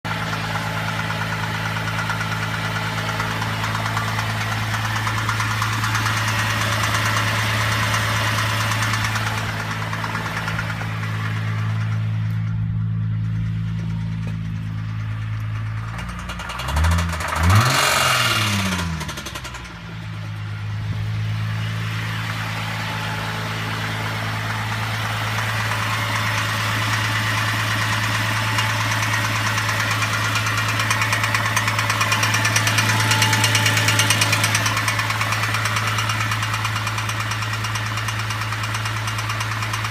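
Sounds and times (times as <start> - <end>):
car engine revving: 0.1 - 39.9
car engine idling with a knock: 8.4 - 16.6.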